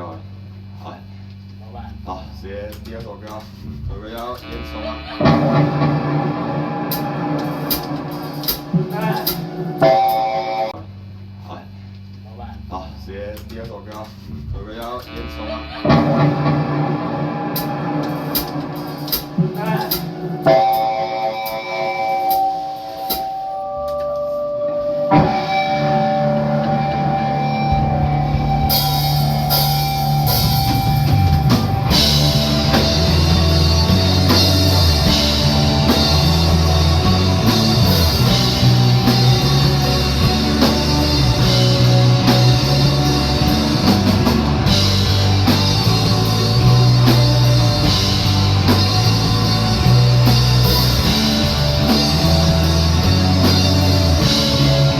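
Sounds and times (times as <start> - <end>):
rock band playing live: 4.5 - 10.7, 15.6 - 54.9
drums with cymbals: 6.8 - 10.6, 14.1 - 23.6, 27.5 - 54.9
held guitar notes: 15.8 - 54.9
heavy low bass line: 25.1 - 54.9.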